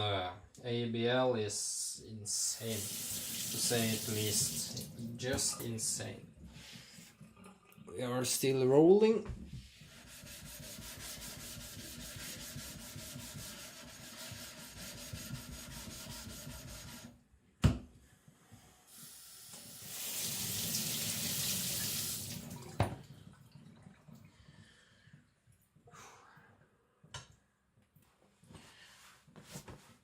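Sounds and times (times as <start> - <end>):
water running from a tap: 2.5 - 5.7, 19.0 - 23.3.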